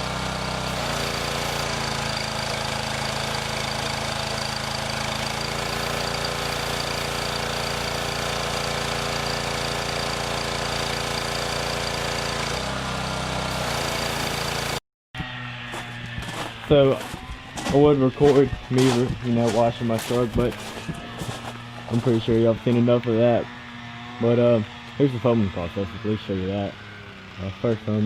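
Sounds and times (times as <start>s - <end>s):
pressure washer running: 0.0s - 28.0s.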